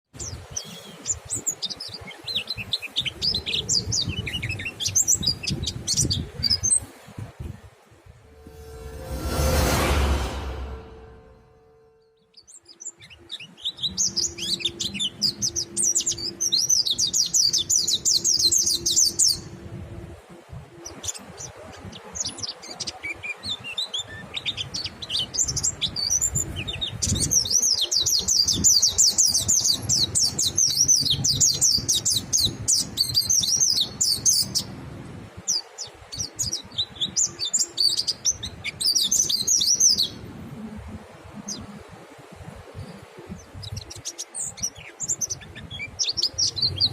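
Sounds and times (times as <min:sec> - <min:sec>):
bird twittering song: 0:00.2 - 0:06.9, 0:12.4 - 0:19.5, 0:20.8 - 0:34.7.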